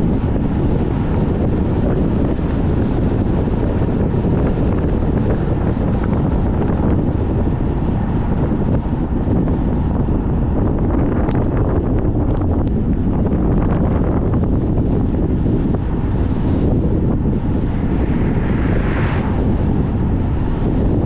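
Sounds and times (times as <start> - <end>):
car running noise: 0.0 - 21.0
wind rumble on microphone: 0.0 - 21.0.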